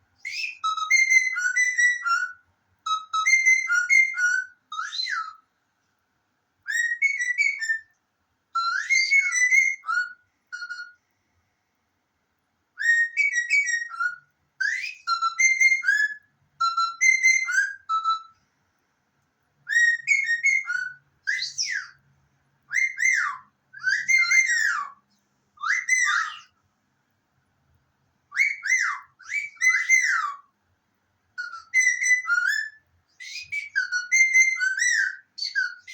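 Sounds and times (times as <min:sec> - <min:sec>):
whistled phrases: 0:00.2 - 0:05.5, 0:06.7 - 0:08.0, 0:08.6 - 0:11.0, 0:12.8 - 0:18.4, 0:19.6 - 0:22.1, 0:22.7 - 0:26.6, 0:28.3 - 0:30.5, 0:31.4 - 0:35.9.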